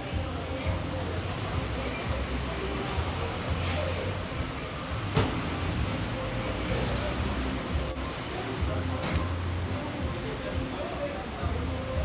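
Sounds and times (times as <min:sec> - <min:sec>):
traffic engine rumble: 0:00.0 - 0:12.0.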